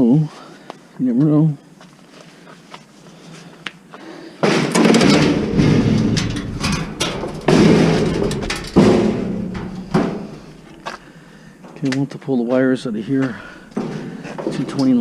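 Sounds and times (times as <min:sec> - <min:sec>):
scrap metal clattering and scraping: 0:04.4 - 0:11.8, 0:13.0 - 0:15.0.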